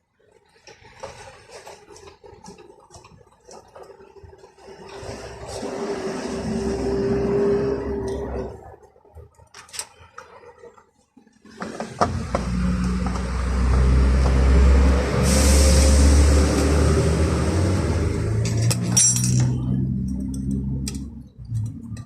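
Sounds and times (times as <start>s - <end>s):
engine low rumble: 12.0s - 22.0s.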